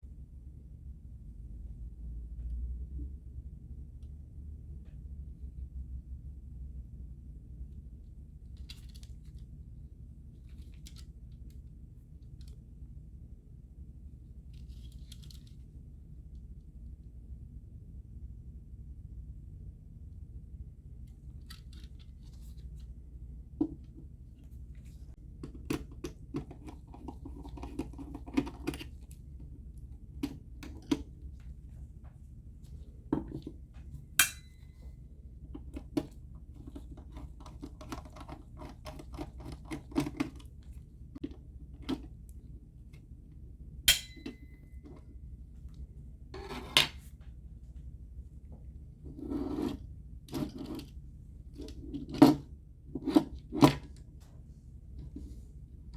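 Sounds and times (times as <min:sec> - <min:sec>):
low steady hum: 0:00.0 - 0:55.9
tools clicking and tapping on plastic: 0:35.6 - 0:40.5.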